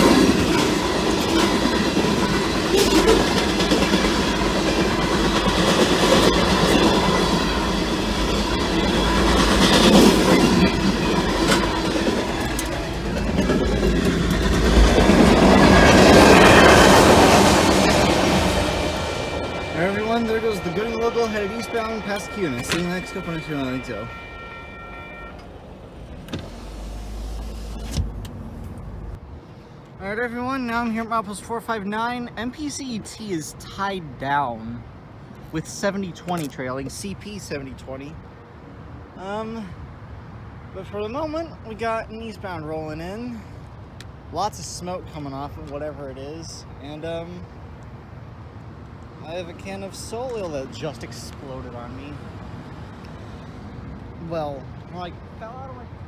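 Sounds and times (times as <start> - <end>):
thin steady tones: 0.0 - 27.7
train wheels rumbling on rails: 0.0 - 29.2, 49.0 - 56.0
wheels clacking over rail joints: 0.0 - 29.2
power window motor running: 26.0 - 29.2.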